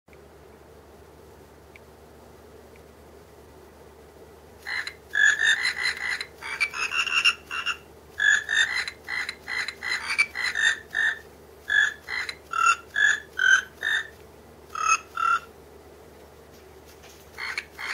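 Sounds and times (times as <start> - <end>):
electronic croaks playing tune: 4.6 - 15.5, 17.4 - 17.9.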